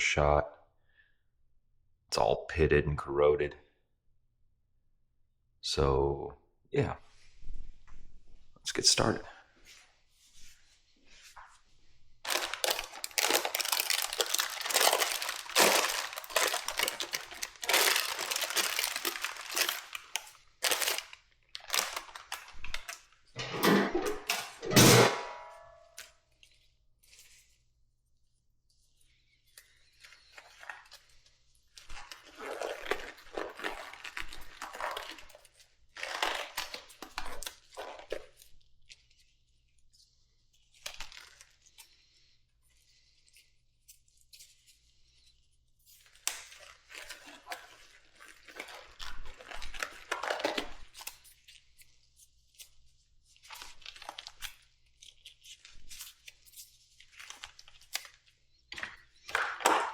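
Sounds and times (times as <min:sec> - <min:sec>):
rustling and tearing: 0:09.6 - 0:23.3, 0:25.9 - 0:59.9.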